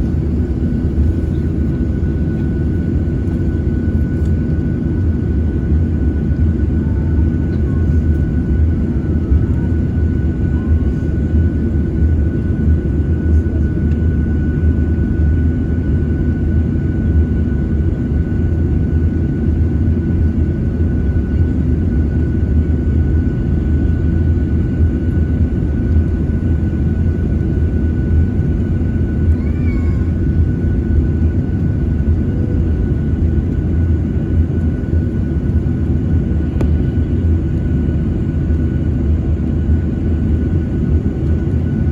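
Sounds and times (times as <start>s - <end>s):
high engine whine: 0.0s - 14.0s, 21.1s - 41.7s
jet engine roar in cabin: 0.0s - 41.9s.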